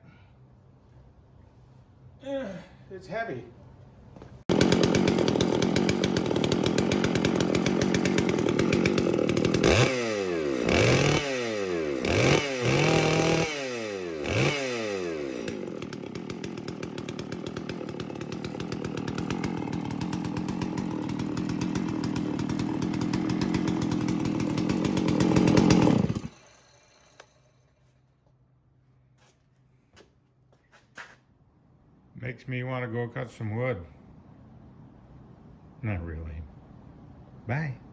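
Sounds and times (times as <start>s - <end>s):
chainsaw running: 4.5s - 28.0s.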